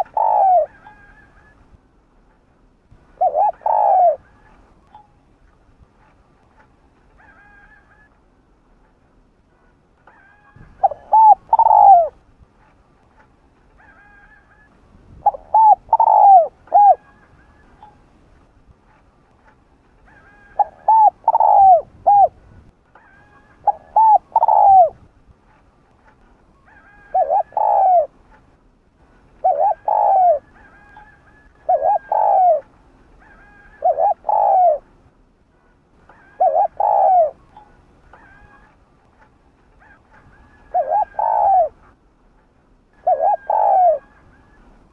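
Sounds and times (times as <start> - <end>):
dove cooing: 0.0 - 1.6, 3.0 - 4.6, 10.1 - 12.2, 13.8 - 18.0, 20.1 - 22.4, 23.0 - 25.0, 26.7 - 28.2, 29.4 - 34.9, 36.0 - 38.8, 39.8 - 42.0, 42.9 - 44.7.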